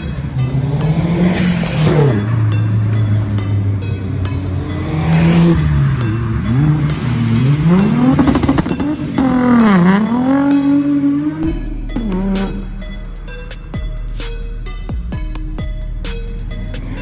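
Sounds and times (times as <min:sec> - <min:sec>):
car engine revving: 0:00.0 - 0:13.4.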